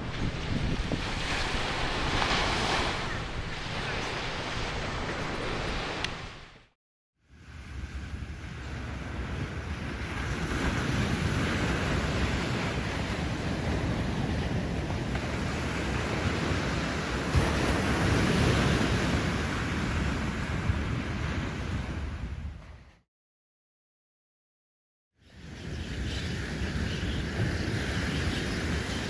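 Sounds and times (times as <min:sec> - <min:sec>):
wind noise on microphone: 0:00.0 - 0:06.7, 0:07.4 - 0:23.0, 0:25.3 - 0:29.0
waves breaking: 0:00.0 - 0:06.8.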